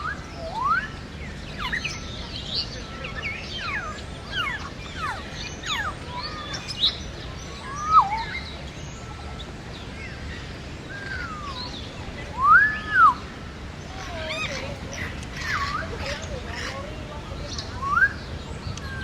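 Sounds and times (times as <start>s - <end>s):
loud whistled bird calls: 0.0s - 9.4s, 10.9s - 13.3s
birds chirping: 0.0s - 19.0s.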